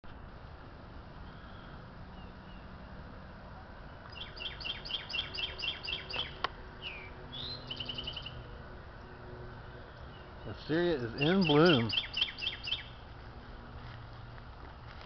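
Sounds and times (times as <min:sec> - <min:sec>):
songbirds whistling and trilling: 0:01.2 - 0:02.8, 0:04.1 - 0:08.5, 0:09.7 - 0:13.0.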